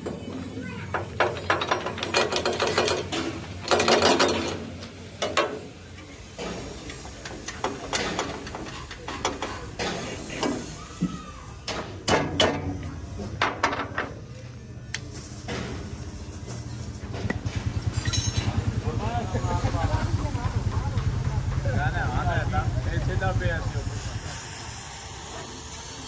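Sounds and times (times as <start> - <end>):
metal parts scraping and clanking: 0.0 - 10.8, 15.0 - 18.7.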